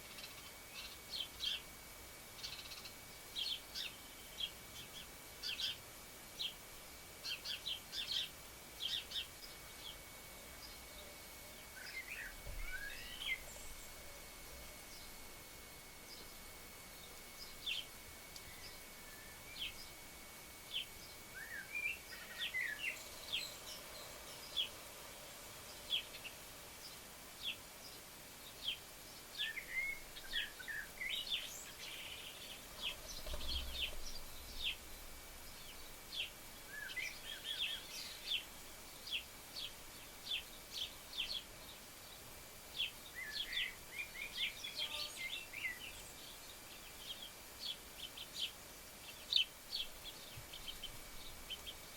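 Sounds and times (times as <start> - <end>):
small birds chirping: 0.0 - 51.9.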